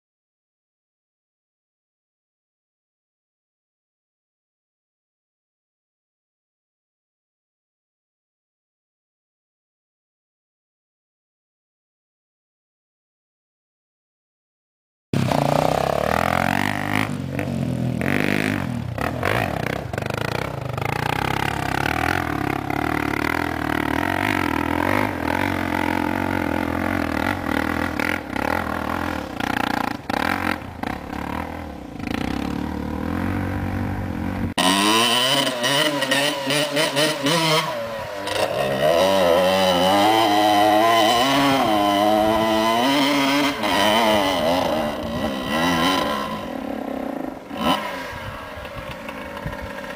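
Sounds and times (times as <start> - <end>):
dirt bike engine under load: 15.2 - 49.9
engine revving hard: 15.2 - 49.9.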